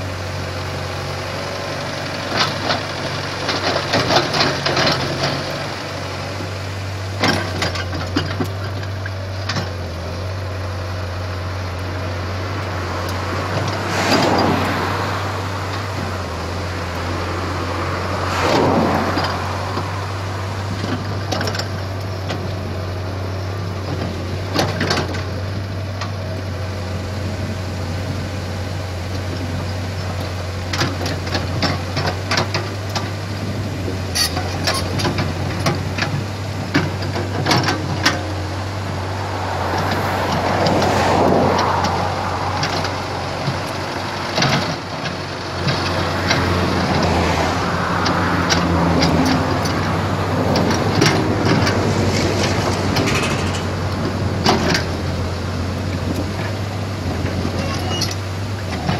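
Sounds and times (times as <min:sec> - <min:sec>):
excavator diesel engine running: 0:00.0 - 0:58.9
sharp metal knocks and clanks: 0:50.6 - 0:54.9.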